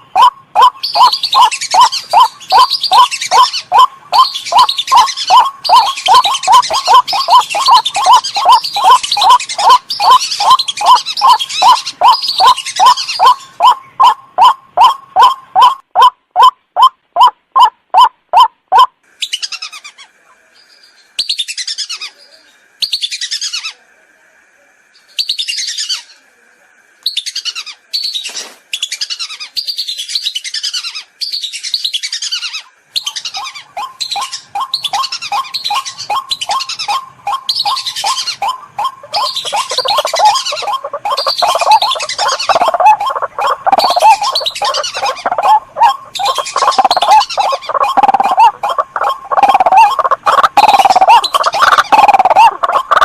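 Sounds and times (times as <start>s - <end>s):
ducks whistling: 0.0s - 18.9s, 33.0s - 53.0s
waterhen low kwak call: 0.0s - 18.9s, 33.1s - 53.0s.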